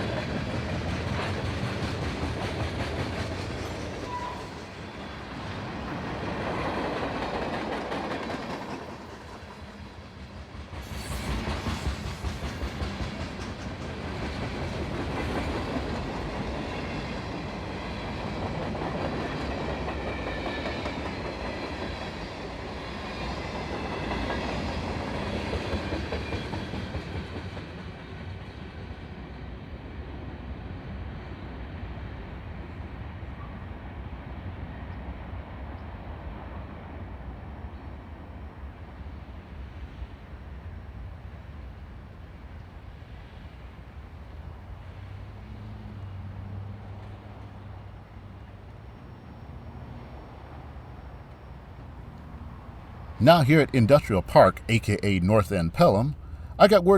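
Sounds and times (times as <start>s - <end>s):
train wheels clicking over rail joints: 0.0s - 4.8s, 5.4s - 27.9s.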